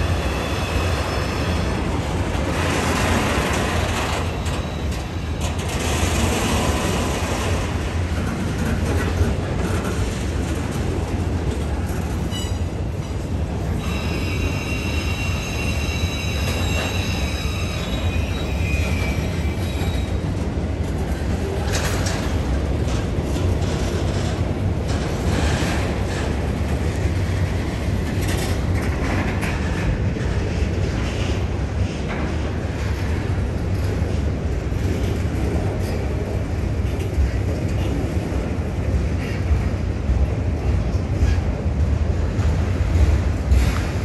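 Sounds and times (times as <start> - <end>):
freight train rumbling past: 0.0 - 44.0
wheels squealing: 13.6 - 20.2.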